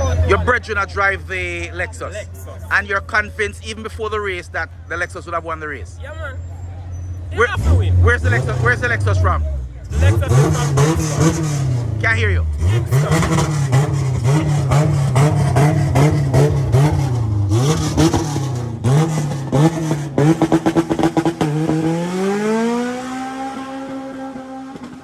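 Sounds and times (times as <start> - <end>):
race car engine revving: 6.7 - 25.0.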